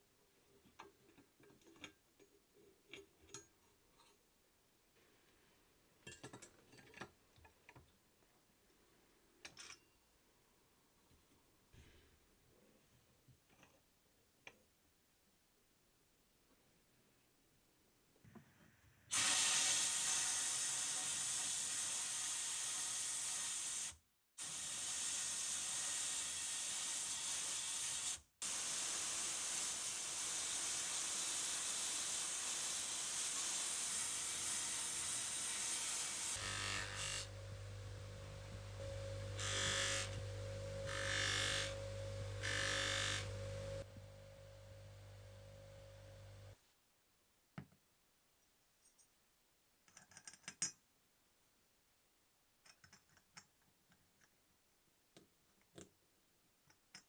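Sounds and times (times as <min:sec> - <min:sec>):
steady hiss: 0:19.1 - 0:46.6
grinding bursts: 0:33.8 - 0:46.5
electric motor running: 0:34.9 - 0:46.5.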